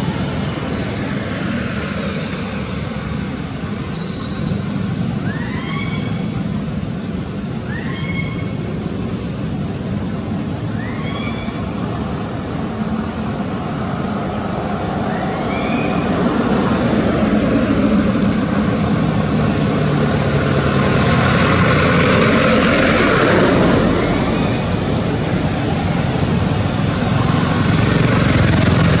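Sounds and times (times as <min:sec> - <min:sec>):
short rising squeaks: 0:00.0 - 0:01.6, 0:03.8 - 0:06.3
road traffic noise: 0:00.0 - 0:29.0.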